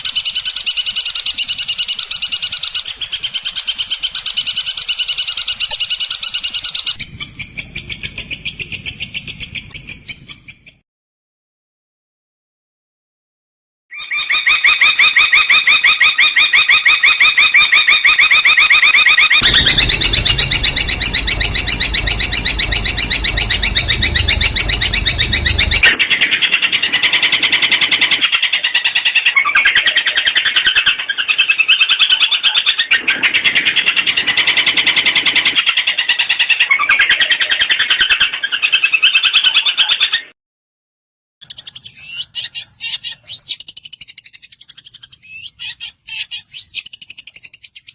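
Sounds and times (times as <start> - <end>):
shrike singing rapid notes: 19.3 - 26.0.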